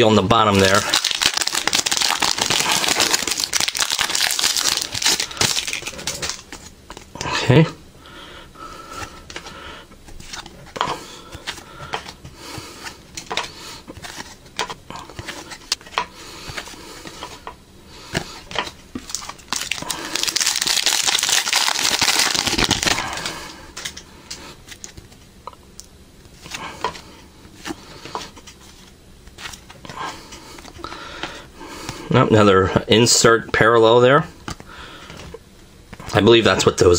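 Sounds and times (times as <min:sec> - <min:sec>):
foil wrapper crinkling and tearing: 0:00.5 - 0:07.1, 0:19.0 - 0:24.0.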